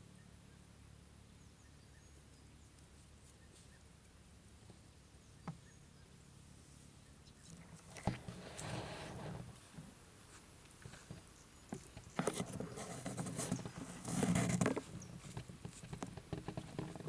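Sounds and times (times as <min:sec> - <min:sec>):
rustling and scraping: 0:07.4 - 0:17.0.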